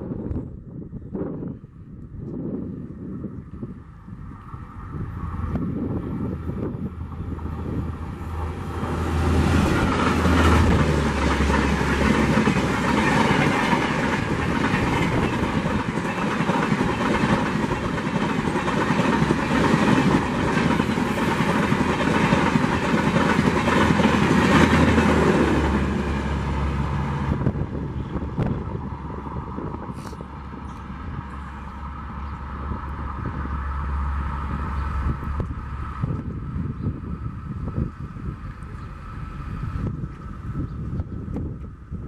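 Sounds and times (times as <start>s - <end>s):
diesel locomotive passing: 0.0s - 42.0s.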